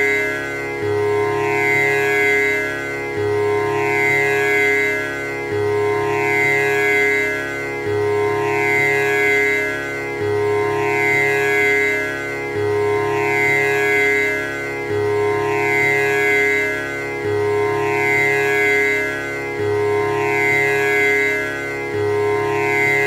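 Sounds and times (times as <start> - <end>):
tanpura drone: 0.0 - 23.0.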